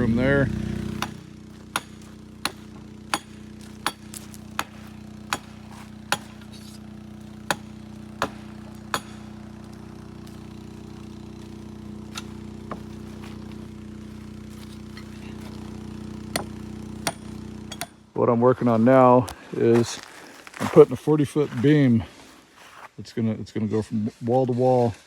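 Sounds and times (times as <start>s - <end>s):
low mechanical hum: 0.0s - 22.9s
hammer blows: 0.8s - 6.8s.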